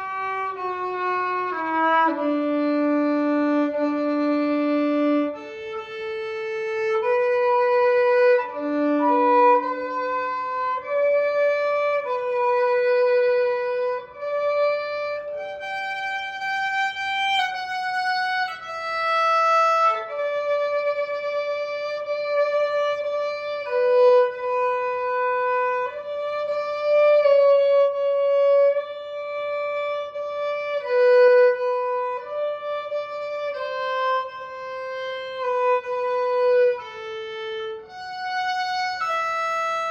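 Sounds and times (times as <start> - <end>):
slow violin melody: 0.0 - 39.9.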